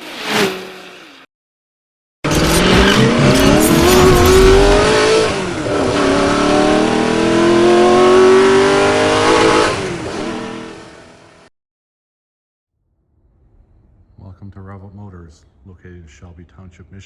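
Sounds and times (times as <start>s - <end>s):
car engine accelerating: 2.3s - 11.4s.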